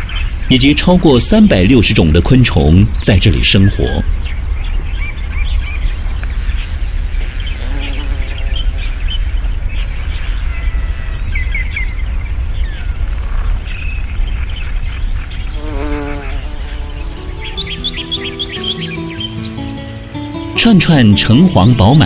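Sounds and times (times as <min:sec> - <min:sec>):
birds chirping: 0:00.0 - 0:22.0
insects buzzing: 0:00.0 - 0:22.0
background music: 0:16.7 - 0:22.0.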